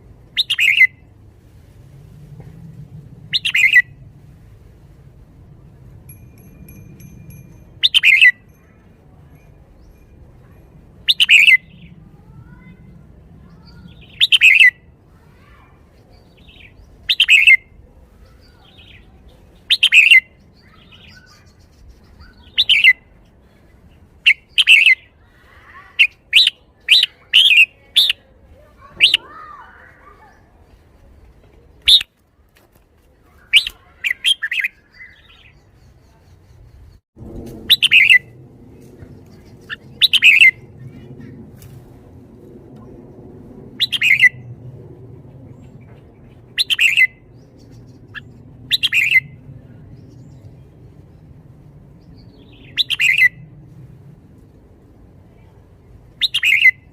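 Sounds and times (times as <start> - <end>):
low steady hum: 0.0 - 19.7, 35.6 - 56.2
bulbul singing: 6.1 - 12.0, 18.4 - 23.1, 37.7 - 38.4, 39.2 - 41.4, 45.6 - 50.4, 52.0 - 53.4.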